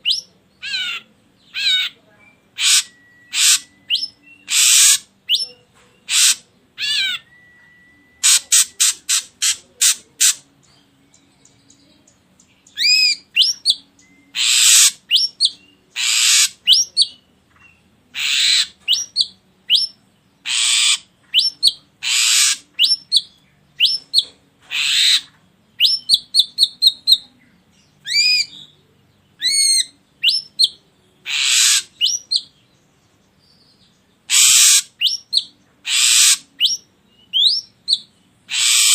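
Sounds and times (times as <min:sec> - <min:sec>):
bird calling harsh and whistled notes: 0:01.6 - 0:10.4, 0:12.8 - 0:17.2, 0:18.2 - 0:27.2, 0:28.0 - 0:28.8, 0:29.4 - 0:32.5, 0:34.3 - 0:38.9.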